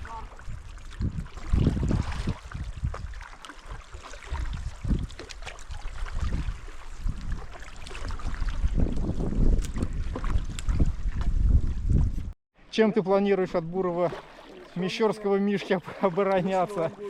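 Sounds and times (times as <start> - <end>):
paddle strokes splashing water: 0.0 - 12.1, 13.8 - 17.0
wind rumbling on microphone: 0.0 - 12.4.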